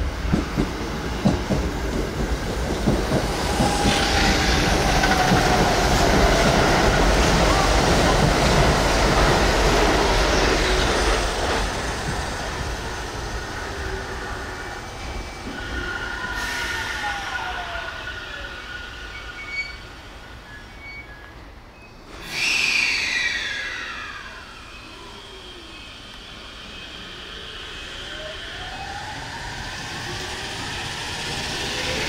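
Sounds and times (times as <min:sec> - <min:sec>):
electric train running on rails: 0:00.0 - 0:32.0
train brakes squealing: 0:15.0 - 0:32.0.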